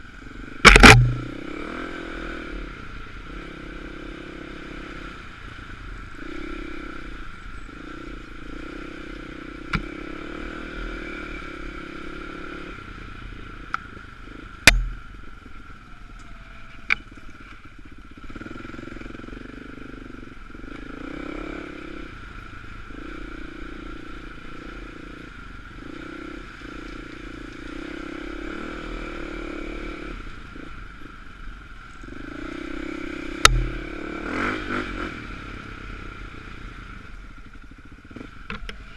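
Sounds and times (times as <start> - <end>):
dirt bike engine: 0.0 - 38.9
sharp knocks and clatters: 0.6 - 1.3.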